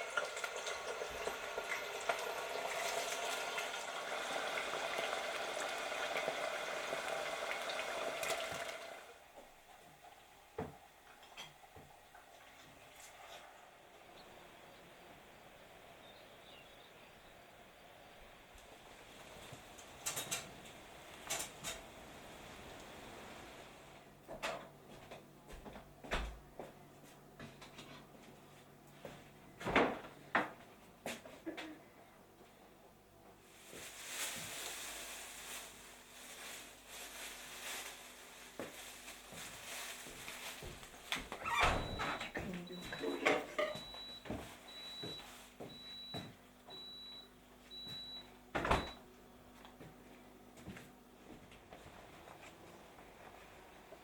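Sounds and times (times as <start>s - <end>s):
food sizzling in hot oil: 0.0s - 8.0s.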